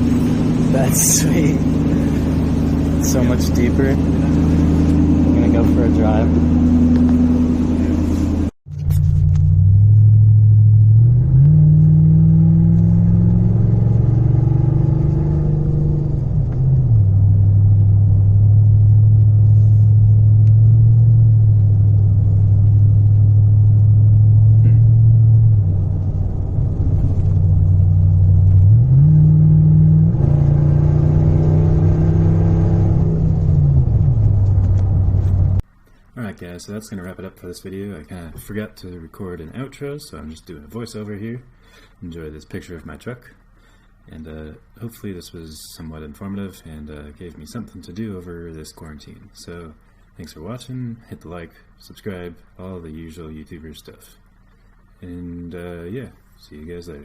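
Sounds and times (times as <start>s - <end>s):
truck engine exhaust drone: 0.0s - 36.1s.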